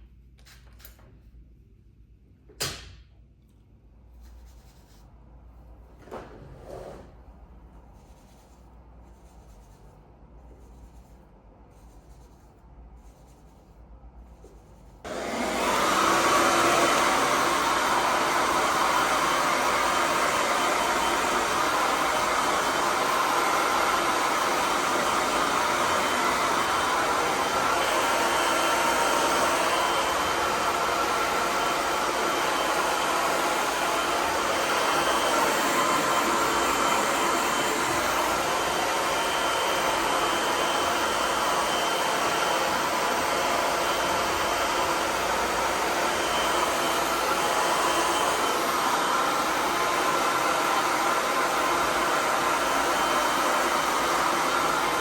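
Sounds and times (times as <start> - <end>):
hair dryer blowing: 15.0 - 55.0.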